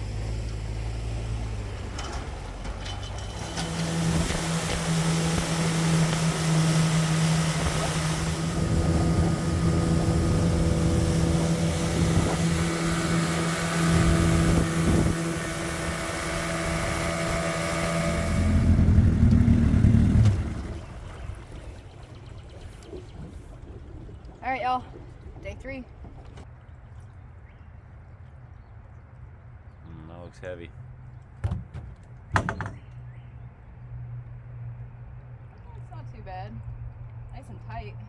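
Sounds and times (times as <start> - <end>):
outboard motor running: 0.0 - 37.9
wind on microphone: 4.1 - 26.4.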